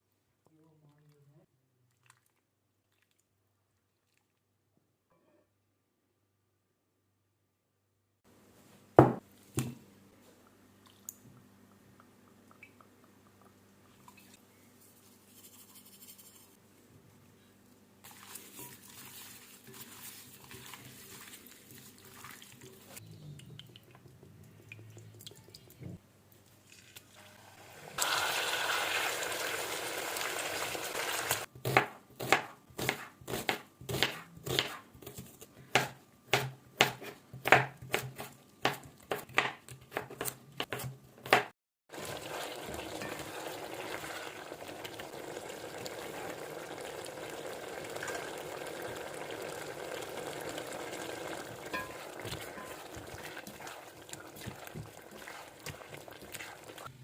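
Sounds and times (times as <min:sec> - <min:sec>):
knife chopping on cutting board: 0:09.0 - 0:09.8, 0:31.6 - 0:41.5
food sizzling in hot oil: 0:27.1 - 0:31.5, 0:41.9 - 0:56.9.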